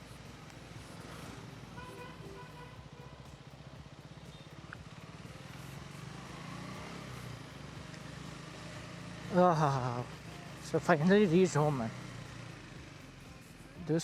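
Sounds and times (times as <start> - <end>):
faint traffic noise: 0.0 - 14.0
motorcycle engine idling: 0.0 - 14.0.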